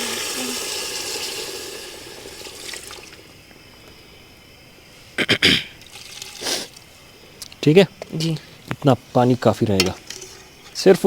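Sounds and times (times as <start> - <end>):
person coughing: 5.2 - 5.8.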